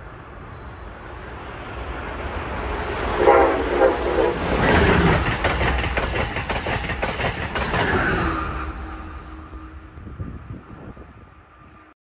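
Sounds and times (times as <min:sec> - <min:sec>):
train passing at speed: 0:00.0 - 0:12.0
wheels clicking over rail joints: 0:04.0 - 0:08.2.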